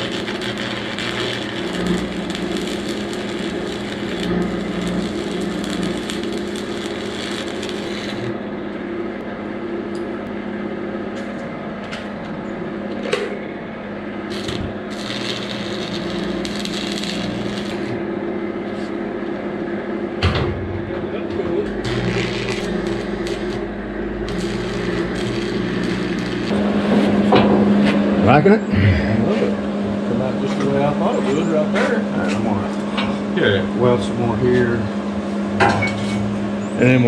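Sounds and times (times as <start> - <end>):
welding crackle and hum: 0.0 - 10.3, 14.2 - 19.5, 21.3 - 27.8.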